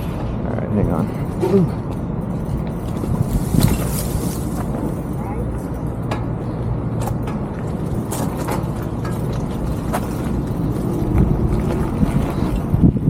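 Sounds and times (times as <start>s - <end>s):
road noise: 0.0s - 13.0s
wind buffeting microphone: 0.0s - 13.0s
clicks and rattles: 1.1s - 12.8s.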